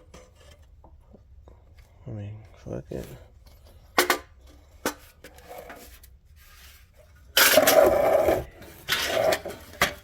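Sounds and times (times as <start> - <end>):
metal clanking and scraping: 3.9 - 10.0.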